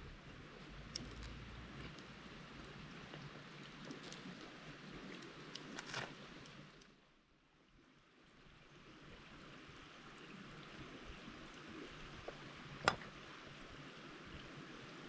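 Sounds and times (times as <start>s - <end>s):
river flowing: 8.4s - 15.0s.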